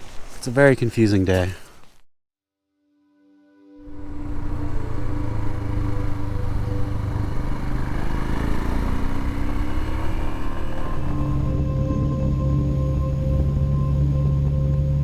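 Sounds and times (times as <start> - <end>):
motorcycle engine running: 3.9 - 15.0
dense low rumble: 4.3 - 8.3, 9.0 - 15.0.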